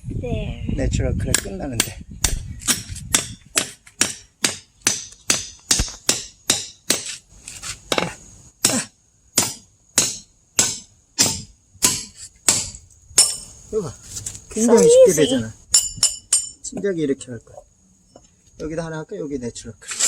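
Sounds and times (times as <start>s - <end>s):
hammer striking steel wedge: 1.3s - 7.2s, 7.9s - 13.5s.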